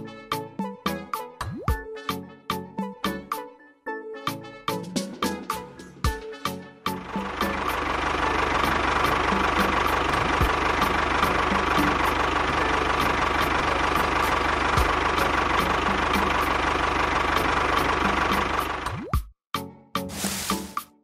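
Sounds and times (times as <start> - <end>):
tractor engine droning: 7.0 - 18.9.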